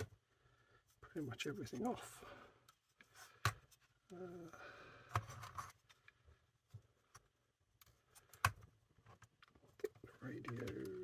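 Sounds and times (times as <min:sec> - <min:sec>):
plastic radio parts clicking: 0:05.0 - 0:11.0.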